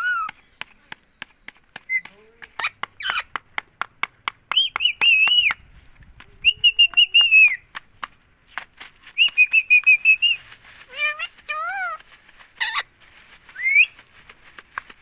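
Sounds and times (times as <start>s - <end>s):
parrot calling shrill notes: 0.0s - 0.3s, 9.2s - 12.0s, 12.6s - 12.9s, 13.5s - 14.0s.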